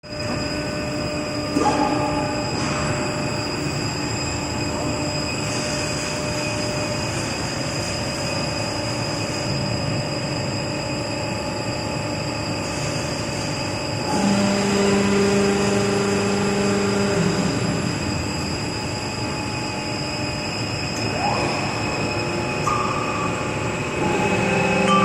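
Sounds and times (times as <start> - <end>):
loud steady hum: 0.0 - 25.0
machine whines: 0.0 - 25.0
machine mechanical din: 20.9 - 25.0.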